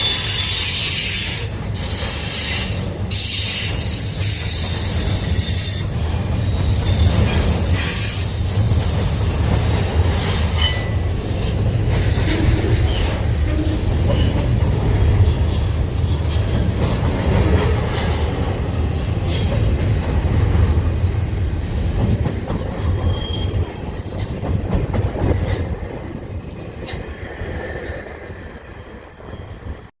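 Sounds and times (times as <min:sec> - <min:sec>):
train wheels rumbling on rails: 0:00.0 - 0:29.9
high wheel squeals: 0:02.3 - 0:08.2, 0:23.0 - 0:23.6, 0:28.3 - 0:29.9.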